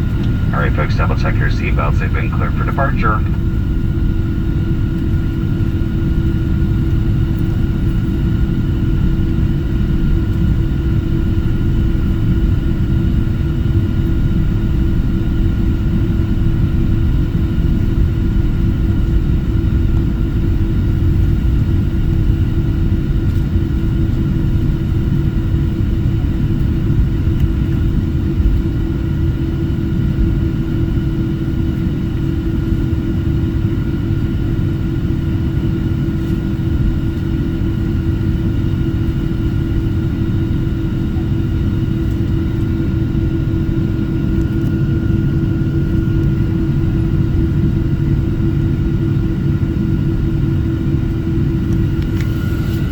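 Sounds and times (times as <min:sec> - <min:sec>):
engine whine: 0:00.0 - 0:13.2
airplane engines rumbling: 0:00.0 - 0:52.9.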